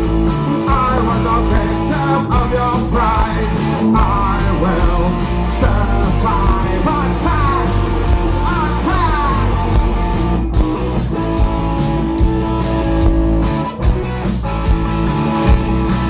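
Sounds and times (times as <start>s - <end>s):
bass guitar: 0.0s - 16.0s
drums and cymbals: 0.0s - 16.0s
electric guitar: 0.0s - 16.0s.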